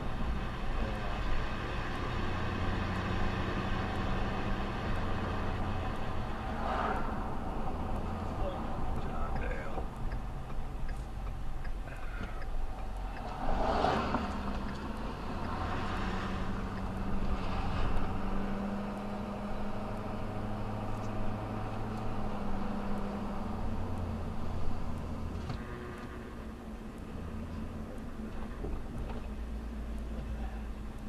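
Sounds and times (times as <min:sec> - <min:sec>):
vehicle engine humming: 0:00.0 - 0:31.0
rush of noise: 0:06.4 - 0:07.7.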